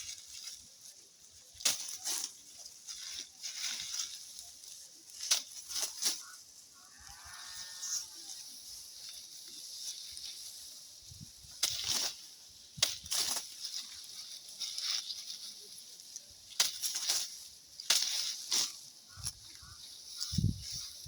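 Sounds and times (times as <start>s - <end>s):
rustle of stalks: 0.0s - 21.0s
blade chopping plant stalks: 1.5s - 6.3s, 11.4s - 20.3s.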